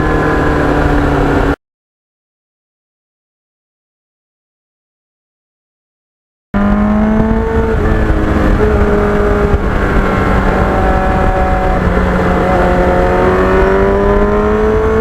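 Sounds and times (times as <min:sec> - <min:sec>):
low wind rumble: 0:00.0 - 0:01.6, 0:06.6 - 0:15.0
motorcycle engine running: 0:00.0 - 0:01.6, 0:06.6 - 0:15.0.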